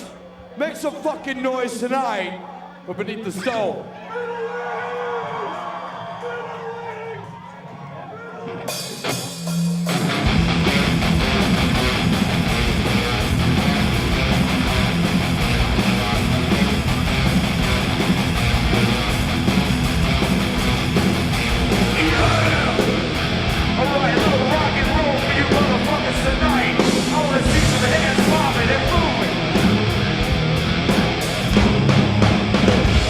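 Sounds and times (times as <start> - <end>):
cymbals keeping beat: 5.2 - 33.0
rock band playing live: 8.4 - 33.0.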